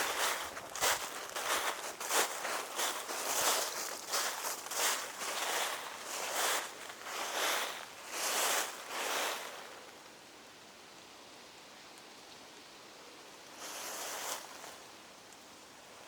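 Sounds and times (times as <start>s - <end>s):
footsteps in leaf litter: 0.0s - 10.0s, 13.5s - 14.9s
faint forest hiss: 0.0s - 16.0s.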